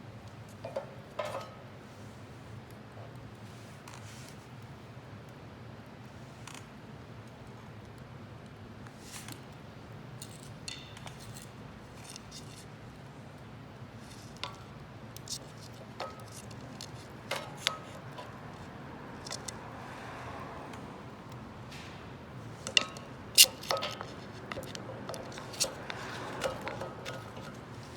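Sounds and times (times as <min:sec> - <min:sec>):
stove fire popping: 0:06.6 - 0:27.9.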